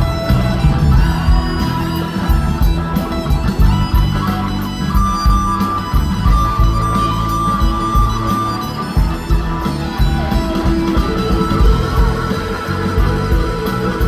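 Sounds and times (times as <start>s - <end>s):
blues-rock band playing: 0.0s - 14.0s.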